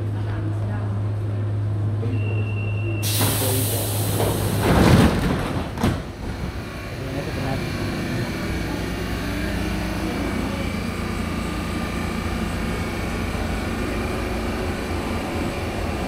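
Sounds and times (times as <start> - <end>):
electric train humming: 5.6 - 16.0.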